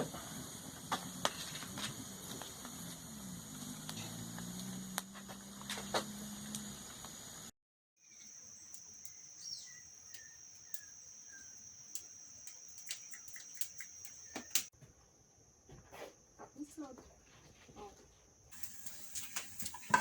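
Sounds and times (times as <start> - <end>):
high-pitched insect drone: 8.0 - 14.7
bird whistling: 9.1 - 11.6.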